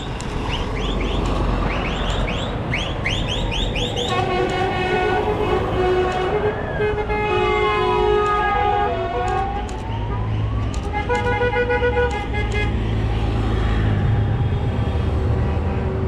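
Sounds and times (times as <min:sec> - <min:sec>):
truck air horns: 0:04.0 - 0:09.6, 0:10.9 - 0:12.8.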